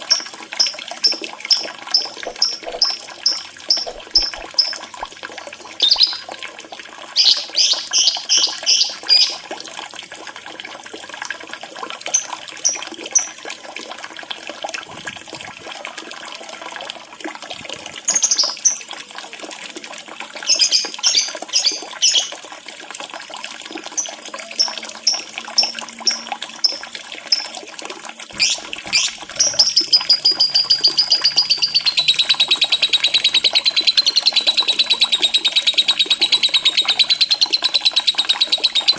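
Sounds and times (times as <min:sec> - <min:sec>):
bird fast trill: 0:00.0 - 0:04.8, 0:05.8 - 0:06.3, 0:07.2 - 0:09.4, 0:24.0 - 0:27.5, 0:28.4 - 0:38.9
lovebird chirping: 0:00.0 - 0:04.8, 0:05.8 - 0:06.3, 0:07.2 - 0:09.4, 0:28.4 - 0:38.9
running water trickling: 0:00.0 - 0:38.9.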